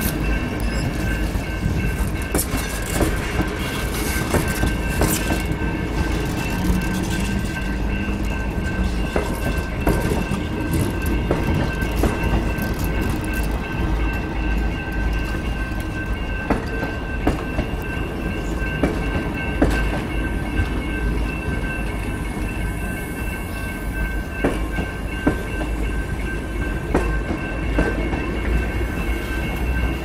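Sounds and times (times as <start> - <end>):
wheels clicking over rail joints: 0.0 - 22.2
train rumbling past: 0.0 - 30.0.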